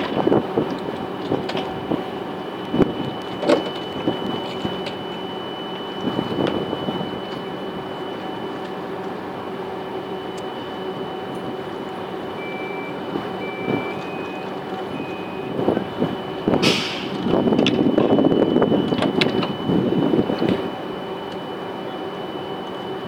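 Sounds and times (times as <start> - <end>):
train equipment humming and whining: 0.0 - 23.0
short electronic beeps: 12.3 - 16.4.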